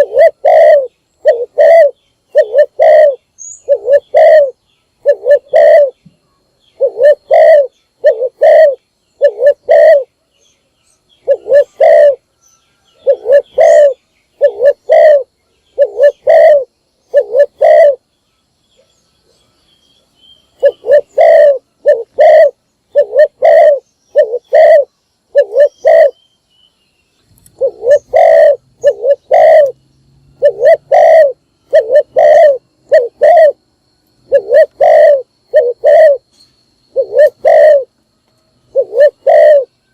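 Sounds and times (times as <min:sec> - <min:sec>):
dove cooing: 0:00.0 - 0:06.0, 0:06.8 - 0:10.1, 0:11.2 - 0:12.3, 0:12.9 - 0:18.0, 0:20.6 - 0:26.2, 0:27.5 - 0:29.8, 0:30.4 - 0:33.6, 0:34.2 - 0:36.3, 0:36.9 - 0:37.9, 0:38.7 - 0:39.7.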